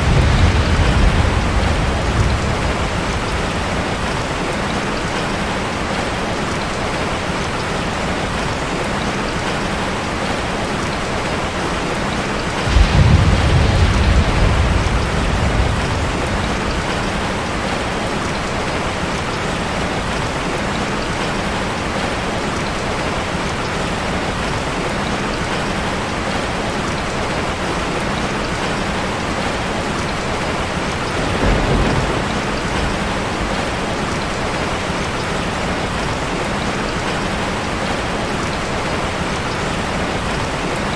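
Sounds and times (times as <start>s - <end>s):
low rumble: 0.0s - 4.3s, 12.6s - 18.0s
rain drumming on a metal roof: 0.0s - 40.9s.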